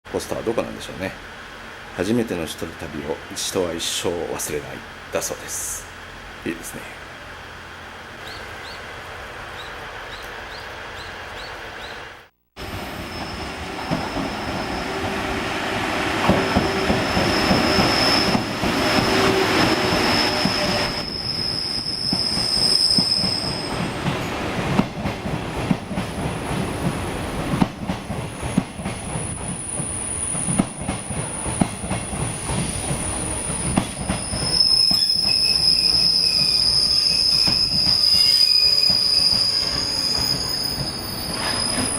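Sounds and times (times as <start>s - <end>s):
train carriages on rails: 8.1s - 41.9s
high-pitched wheel squeal: 16.5s - 23.9s, 33.5s - 41.9s.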